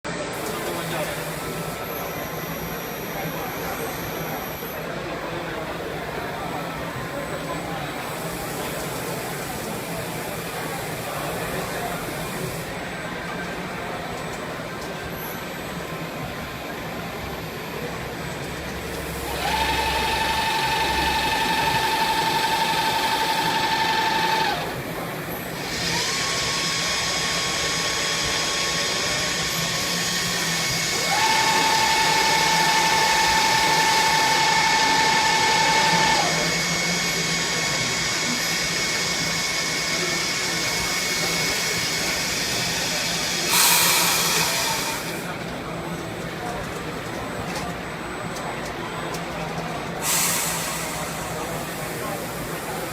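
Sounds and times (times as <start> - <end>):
lathe machine hum: 18.6 - 45.6
high spindle whine: 18.8 - 49.4.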